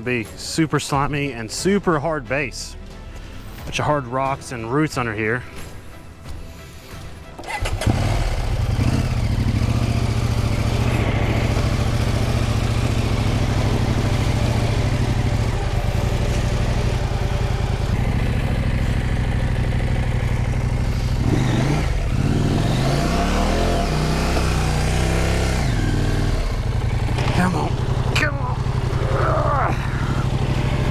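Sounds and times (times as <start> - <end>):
motorcycle engine revving: 7.4 - 30.9.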